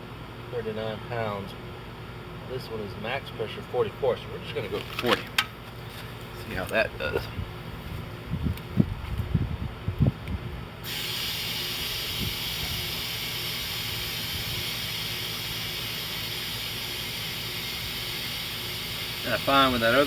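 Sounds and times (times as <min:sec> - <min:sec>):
compressed air hissing into tire: 0:10.8 - 0:20.0.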